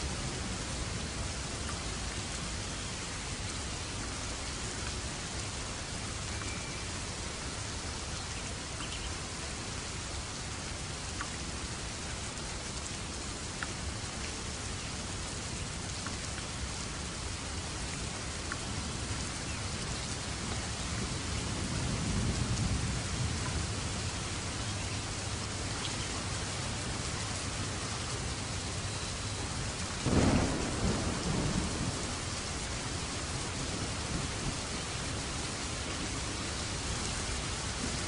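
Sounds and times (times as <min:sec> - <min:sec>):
steady rain: 0:00.0 - 0:38.0
raindrop ticks: 0:01.6 - 0:01.9, 0:11.1 - 0:11.4, 0:13.5 - 0:14.4, 0:18.4 - 0:18.7
low thunder rumble: 0:29.5 - 0:38.0.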